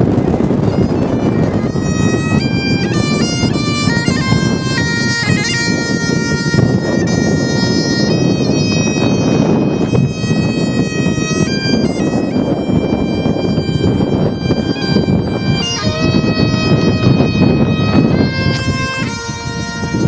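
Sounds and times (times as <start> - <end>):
bagpipes playing melody: 0.0 - 20.0
wind buffeting microphone: 0.0 - 20.0.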